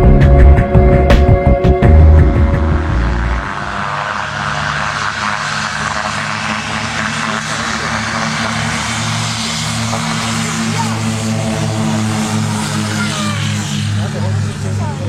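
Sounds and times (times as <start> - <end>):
loud music: 0.0 - 4.8
propeller aircraft engine running: 0.0 - 15.0.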